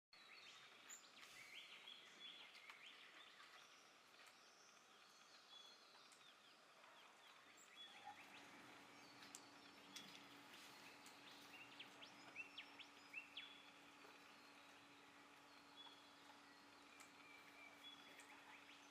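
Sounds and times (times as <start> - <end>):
faint bird chirps: 0.2 - 18.9.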